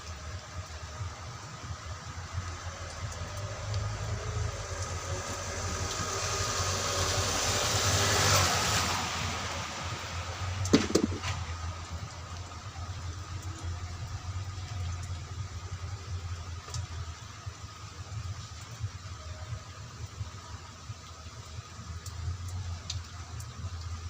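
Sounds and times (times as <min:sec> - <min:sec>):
sharp knock: 0:10.7 - 0:11.4.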